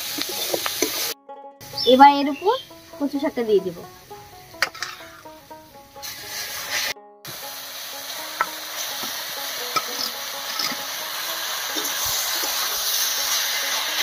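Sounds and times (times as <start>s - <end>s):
food frying in oil: 0.0s - 1.2s, 6.0s - 14.0s.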